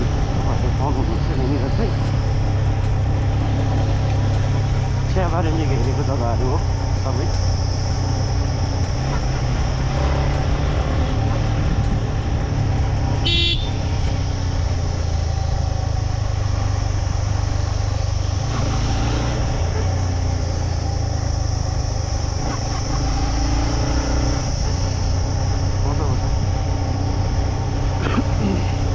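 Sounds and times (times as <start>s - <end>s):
motorcycle engine running: 0.0s - 28.9s
wind noise on microphone: 11.0s - 14.9s
horn honk: 13.2s - 14.1s.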